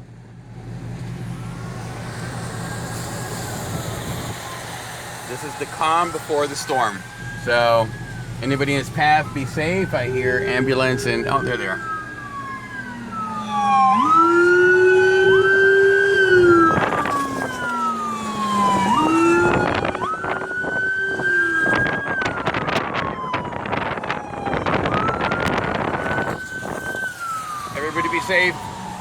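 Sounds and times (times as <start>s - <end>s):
emergency sirens wailing: 0.0s - 29.0s.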